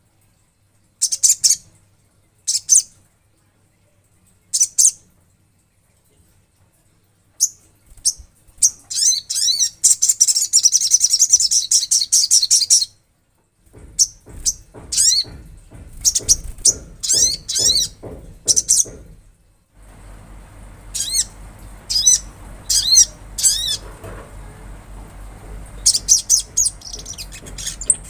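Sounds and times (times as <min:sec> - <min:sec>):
bird singing: 0:07.4 - 0:13.0, 0:14.0 - 0:19.1, 0:20.8 - 0:24.0, 0:25.4 - 0:28.0.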